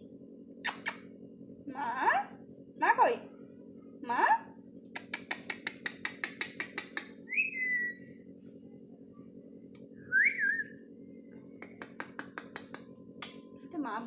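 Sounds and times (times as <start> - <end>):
parrot sharp clicks: 4.9 - 7.1, 11.6 - 13.4
parrot whistles: 7.3 - 8.1, 10.0 - 10.8.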